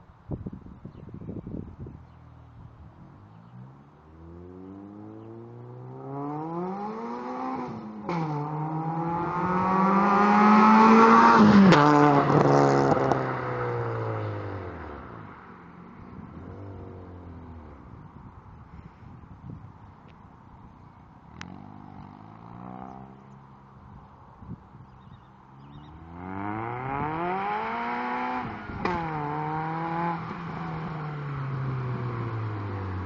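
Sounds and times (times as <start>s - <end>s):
car passing: 2.1s - 19.2s, 20.4s - 24.4s, 25.4s - 33.0s
car accelerating hard: 3.5s - 15.3s, 25.8s - 33.0s.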